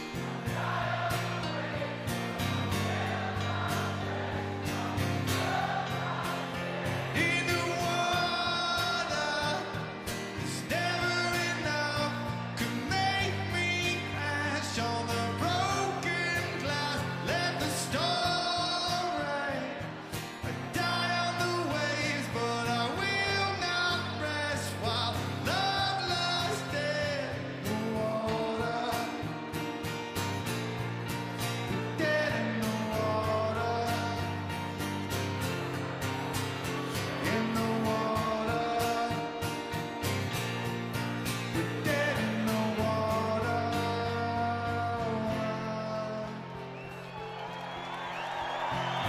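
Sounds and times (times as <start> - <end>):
electric guitars: 0.0 - 49.0
person singing: 37.0 - 39.4, 41.6 - 46.6.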